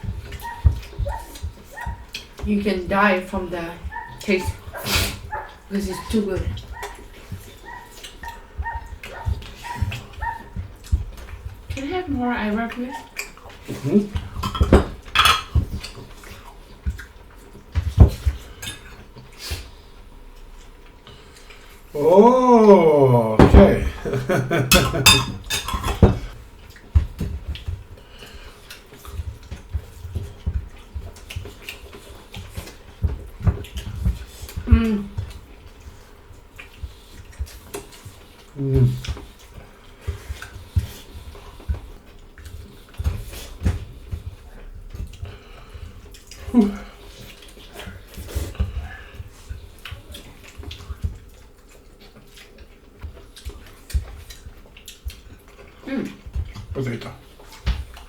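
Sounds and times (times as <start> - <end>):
cutlery clinking on plates: 14.4 - 16.0, 24.6 - 26.3
person humming: 22.0 - 24.7.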